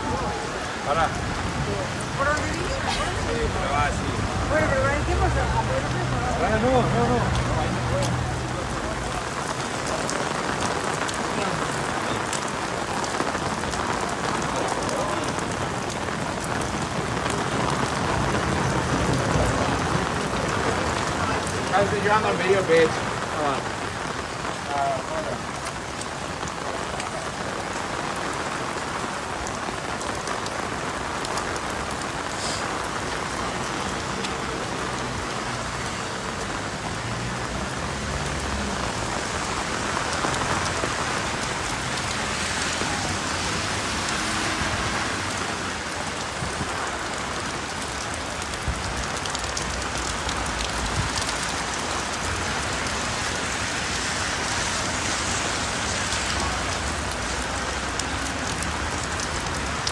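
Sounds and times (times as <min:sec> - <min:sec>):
rain on a wet street: 0:00.0 - 0:59.9.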